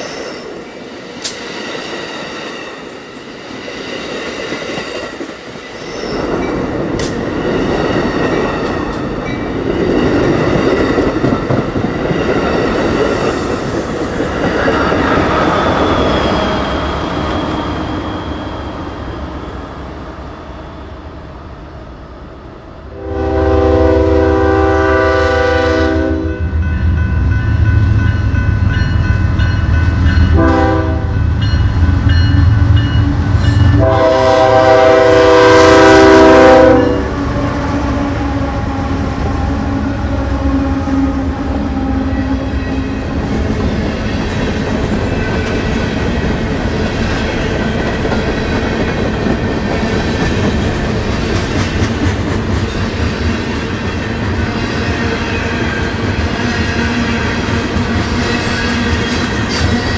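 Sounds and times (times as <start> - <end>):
diesel locomotive approaching: 0.0 - 59.9
passenger train rumble: 0.0 - 59.9
train air horn blasts: 22.9 - 26.6, 30.3 - 31.2, 33.6 - 37.2.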